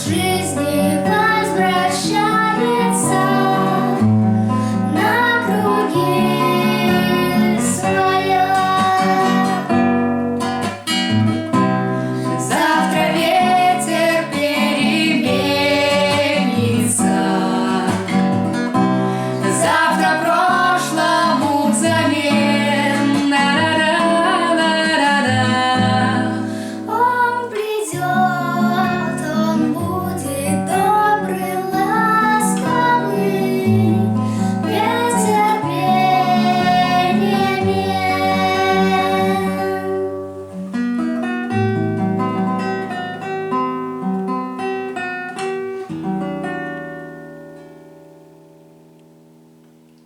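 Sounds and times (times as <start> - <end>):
child singing: 0.0 - 4.2, 4.8 - 9.8, 12.4 - 18.4, 19.4 - 40.1.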